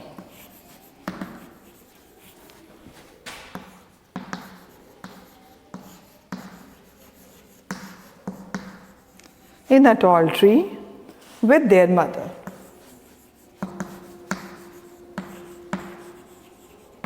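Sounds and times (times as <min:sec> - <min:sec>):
writing scratching on board: 0:00.0 - 0:09.8, 0:11.1 - 0:17.0
writing tool tapping board: 0:00.1 - 0:01.8, 0:03.3 - 0:09.4, 0:12.4 - 0:17.0.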